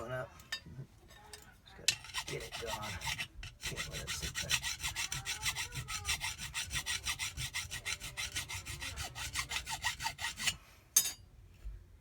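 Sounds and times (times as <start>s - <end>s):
hand file rasping on metal: 1.9s - 10.6s.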